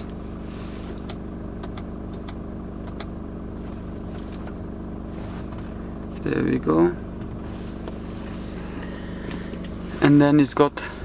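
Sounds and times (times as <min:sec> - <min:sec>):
diesel engine idling: 0:00.0 - 0:11.0
dashboard button clicks: 0:01.0 - 0:03.2.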